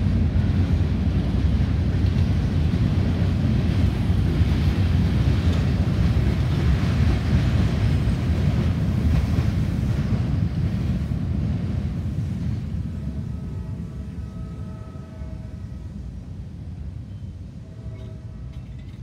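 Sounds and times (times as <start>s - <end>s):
wind buffeting microphone: 0.0s - 13.2s
train wheels rumbling on rails: 0.0s - 19.0s.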